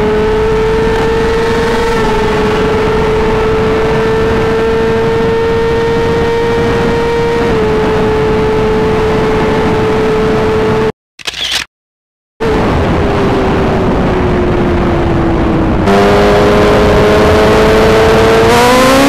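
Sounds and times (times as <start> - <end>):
heavy wind rush: 0.0 - 10.9, 12.4 - 19.0
motorcycle engine at high revs: 0.0 - 10.9, 15.5 - 19.0.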